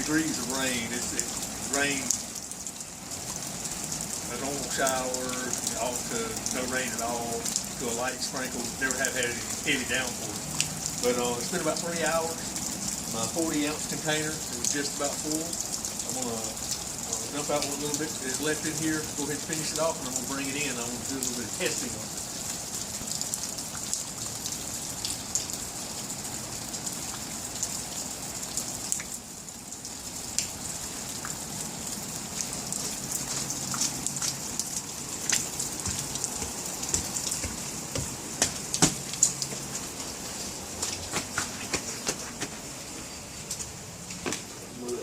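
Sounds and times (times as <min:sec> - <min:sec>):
rain pattering on surfaces: 0:00.0 - 0:45.0
sharp taps: 0:35.3 - 0:39.6.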